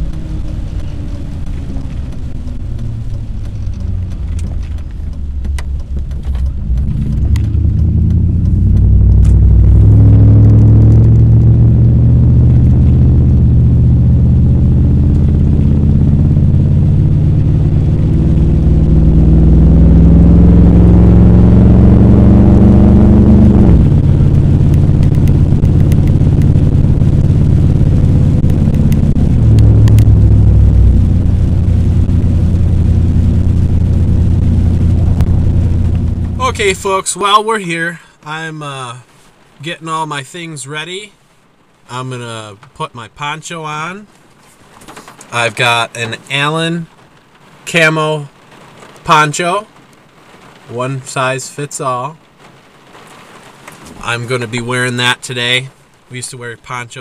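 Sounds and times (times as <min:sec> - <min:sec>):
car engine: 0:00.0 - 0:40.8
road rumble: 0:00.0 - 0:57.0.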